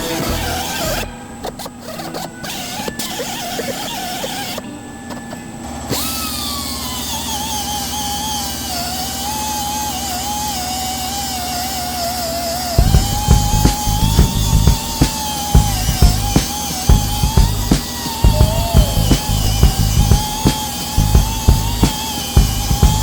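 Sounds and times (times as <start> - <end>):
electric power tool whining: 0.0 - 23.0.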